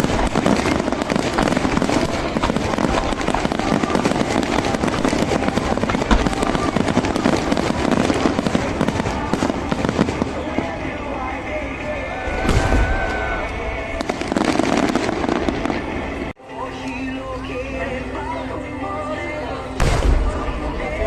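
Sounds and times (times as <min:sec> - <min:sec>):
fireworks bangs and crackling: 0:00.0 - 0:16.4, 0:19.8 - 0:21.0
heavy firework boom: 0:12.3 - 0:13.4, 0:19.8 - 0:20.8.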